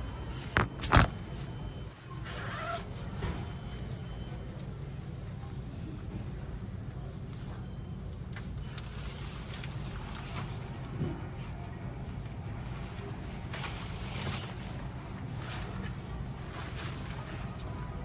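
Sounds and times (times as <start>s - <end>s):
fabric rustling: 2.2s - 3.1s.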